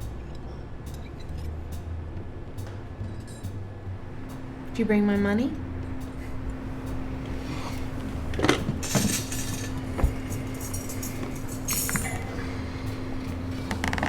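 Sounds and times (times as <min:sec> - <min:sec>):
steady low hum: 0:00.0 - 0:14.0
light clinks: 0:07.7 - 0:14.0.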